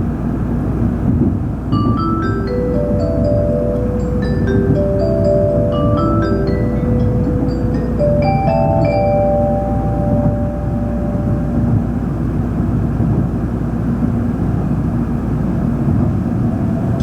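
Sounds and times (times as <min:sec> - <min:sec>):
train cabin rumble: 0:00.0 - 0:17.0
train onboard chime melody: 0:01.6 - 0:13.4.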